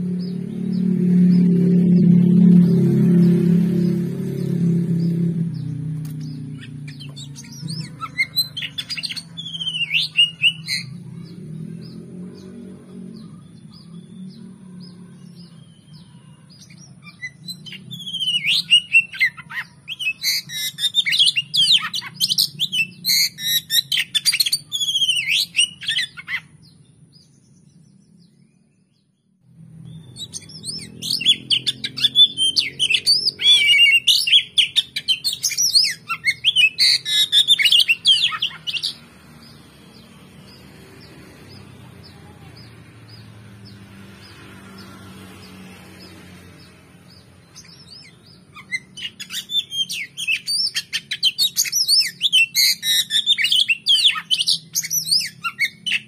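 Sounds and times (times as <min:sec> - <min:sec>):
bird singing whistled phrases: 0:06.6 - 0:10.9, 0:16.6 - 0:26.4, 0:30.1 - 0:39.0, 0:47.6 - 0:56.0.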